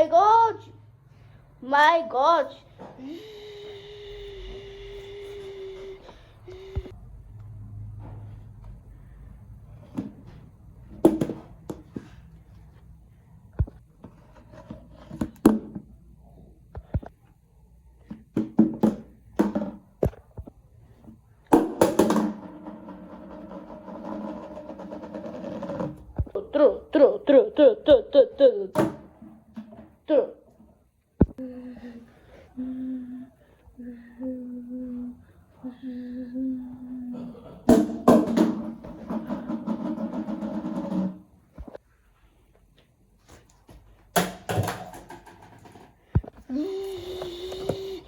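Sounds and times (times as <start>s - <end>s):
steady pitched hum: 0.0s - 7.3s, 30.0s - 39.1s
robot vacuum humming: 3.0s - 6.9s, 46.5s - 48.0s.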